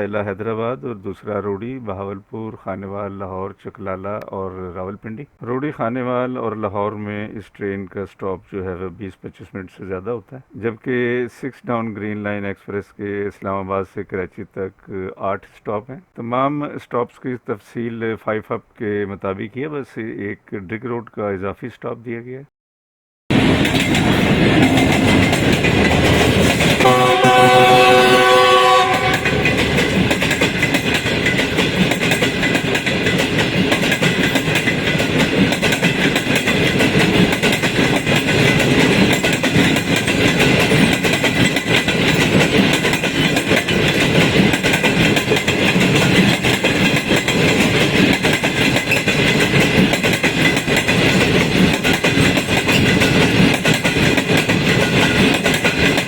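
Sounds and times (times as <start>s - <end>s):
train rumbling and clacking on rails: 23.3s - 56.0s
train horn chord: 26.8s - 30.1s.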